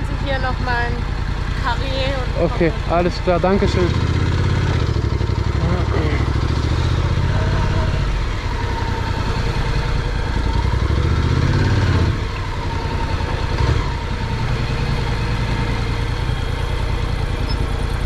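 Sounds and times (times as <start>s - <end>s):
motorcycle engine: 0.0s - 18.0s.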